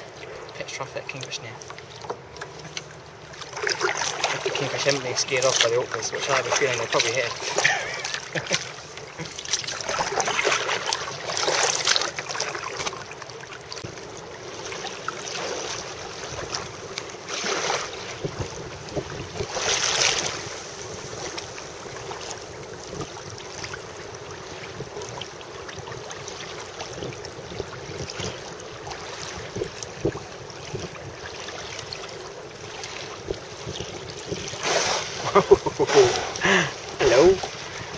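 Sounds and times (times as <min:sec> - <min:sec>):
water sloshing around kayak: 0:00.0 - 0:37.9
water splashes: 0:00.0 - 0:37.9
wind buffeting microphone: 0:18.0 - 0:26.2, 0:26.9 - 0:31.3, 0:33.1 - 0:35.8.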